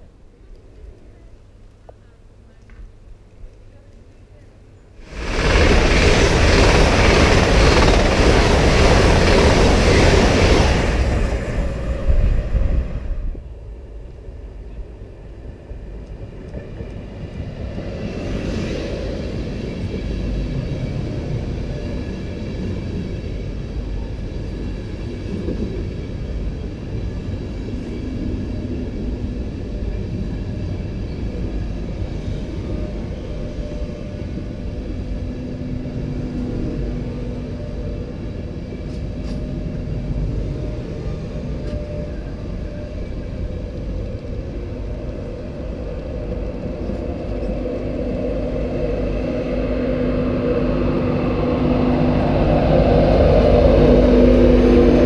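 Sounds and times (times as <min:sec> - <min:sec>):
loud rushing noise: 0:05.0 - 0:13.4
train wheels rumbling on rail: 0:05.0 - 0:55.0.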